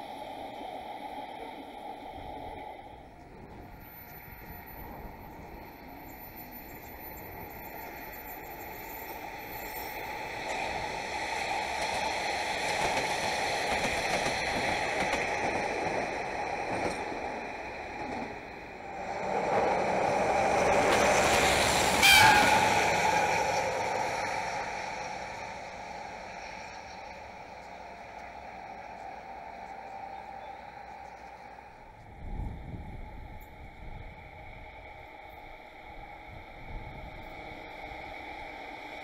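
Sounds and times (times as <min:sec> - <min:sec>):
diesel locomotive passing: 0:00.0 - 0:39.0
train running noise: 0:00.0 - 0:39.0.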